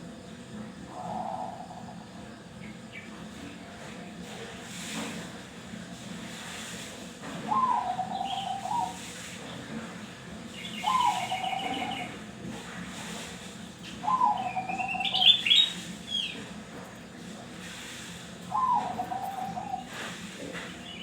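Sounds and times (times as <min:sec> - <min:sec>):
dove cooing: 0:00.9 - 0:02.1, 0:07.4 - 0:09.2, 0:10.6 - 0:12.4, 0:13.9 - 0:16.4, 0:18.4 - 0:21.0
small bird chirping and trilling: 0:14.1 - 0:16.4.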